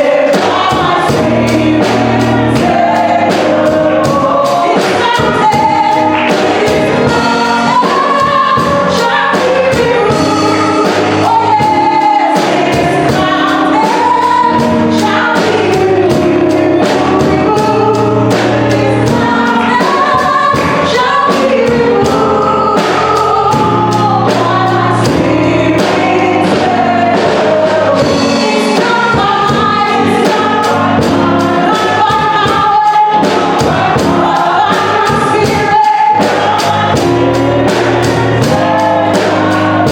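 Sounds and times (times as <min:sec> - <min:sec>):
band with steady beat: 0:00.0 - 0:39.9
congregation singing gospel: 0:00.0 - 0:39.9
woman singing lead: 0:00.0 - 0:39.9.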